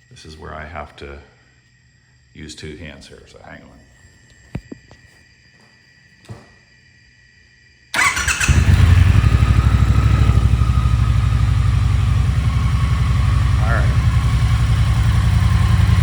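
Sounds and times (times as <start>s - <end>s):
motorcycle engine cranking and idling: 8.0s - 16.0s.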